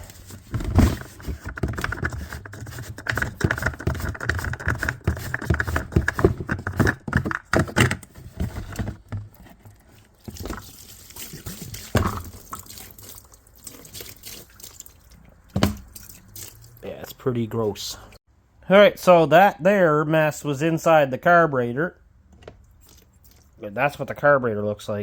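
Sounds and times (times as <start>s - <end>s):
parts knocking and rattling: 0.0s - 10.7s
fuel pouring and dripping: 9.8s - 17.0s, 22.6s - 23.6s.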